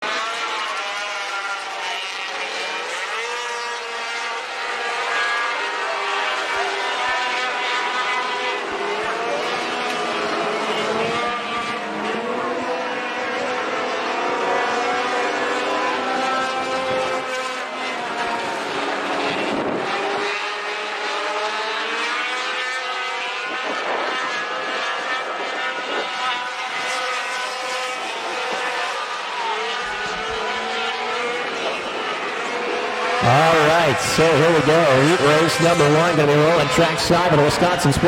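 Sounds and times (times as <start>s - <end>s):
race truck engines revving: 0.0s - 38.0s.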